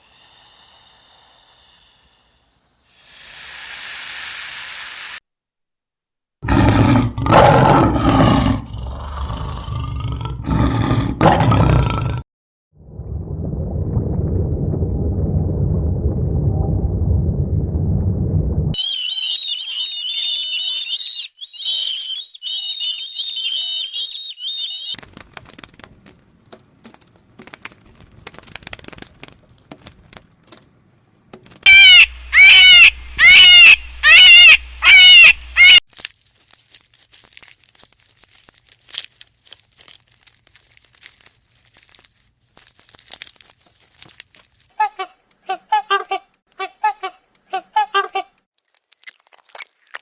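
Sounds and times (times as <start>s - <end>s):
birds chirping rapidly: 18.8s - 25.0s, 31.7s - 35.8s
loud arching bird calls: 18.8s - 25.0s, 31.7s - 35.8s
rustling and clicking: 25.0s - 31.7s, 35.9s - 45.4s.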